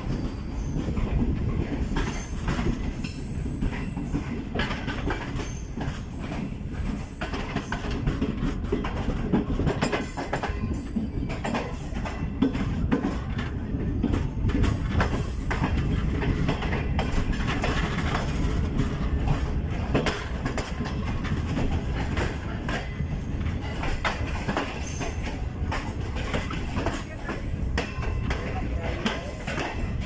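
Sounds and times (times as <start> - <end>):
train wheels rumbling: 0.0 - 30.0
wheels clacking over rail joints: 0.0 - 30.0.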